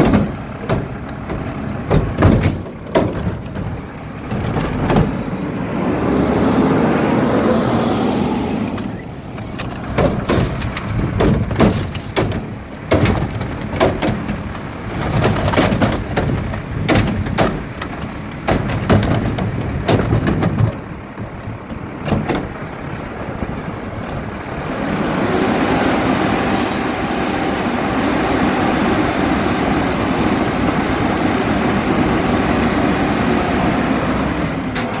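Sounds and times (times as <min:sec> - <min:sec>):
sharp knocks and clatters: 0:00.0 - 0:05.2, 0:10.0 - 0:22.6
garbage truck engine revving: 0:00.0 - 0:35.0.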